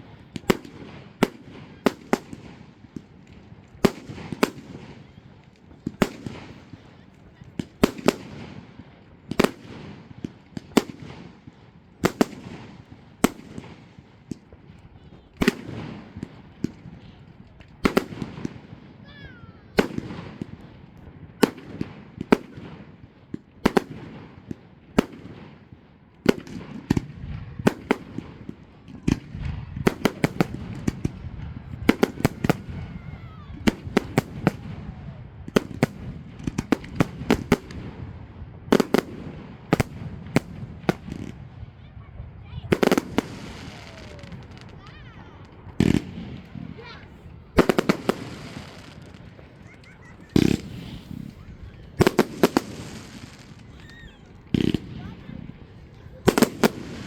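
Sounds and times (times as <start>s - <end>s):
firework shells bursting: 45.5s - 55.5s.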